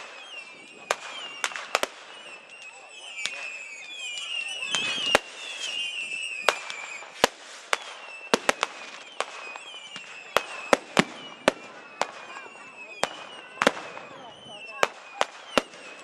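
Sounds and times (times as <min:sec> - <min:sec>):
firework bangs: 0:00.0 - 0:16.0
firework whistles: 0:00.0 - 0:16.0.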